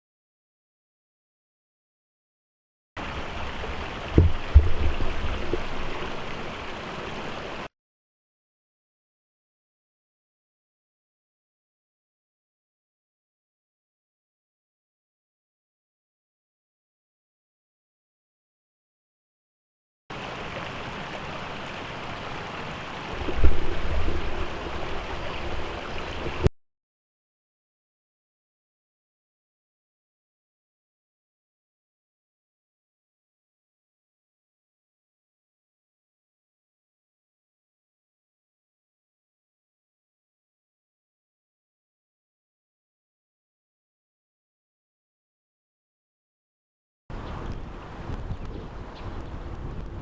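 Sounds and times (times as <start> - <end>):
river water rushing: 3.0 - 7.7, 20.1 - 26.5, 47.2 - 50.0
low thumps: 3.4 - 6.5, 23.1 - 26.5
heavy low rumble: 23.2 - 26.5.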